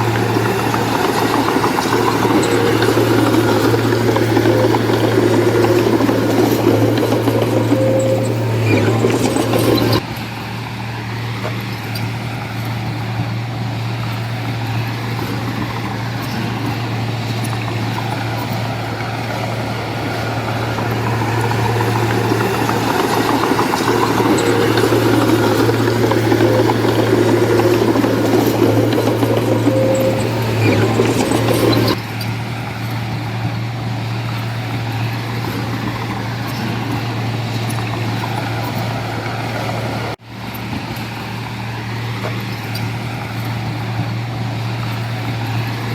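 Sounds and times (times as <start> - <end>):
heavy machinery diesel engine: 0.0 - 45.9.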